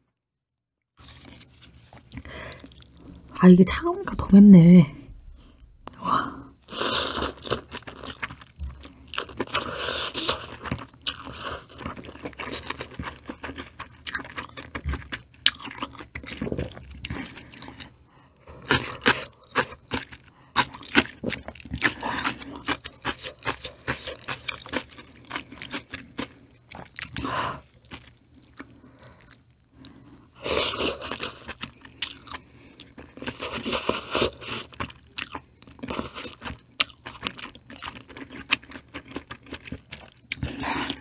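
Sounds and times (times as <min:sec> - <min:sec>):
chewing and crunching food: 0:01.0 - 0:03.4, 0:05.0 - 0:41.0.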